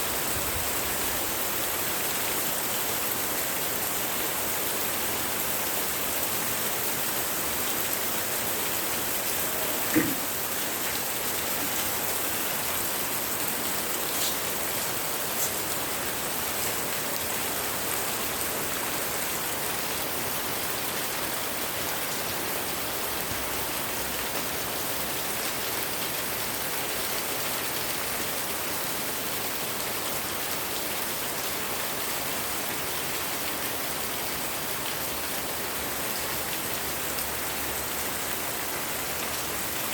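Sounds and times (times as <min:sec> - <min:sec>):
heavy rain falling: 0:00.0 - 0:39.9
knock: 0:09.9 - 0:10.3.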